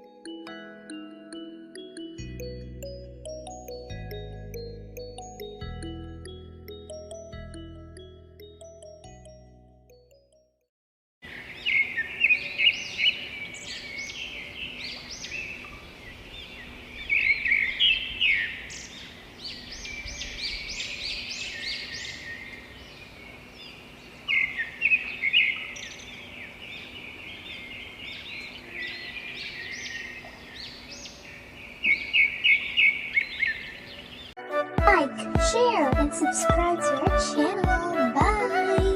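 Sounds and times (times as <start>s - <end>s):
small birds chirping: 11.2s - 34.4s.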